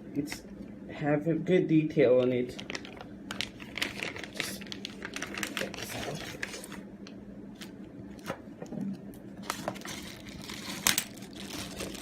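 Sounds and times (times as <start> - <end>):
low steady hum: 0.0 - 12.0
packaging crinkling: 2.5 - 6.9, 9.4 - 12.0.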